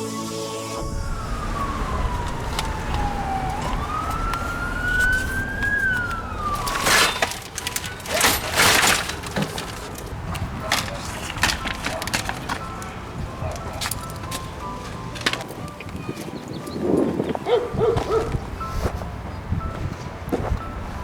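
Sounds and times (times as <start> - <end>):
siren wailing: 0.7 - 9.7
loud bursts of noise: 0.8 - 10.4
traffic rumble: 0.8 - 21.0.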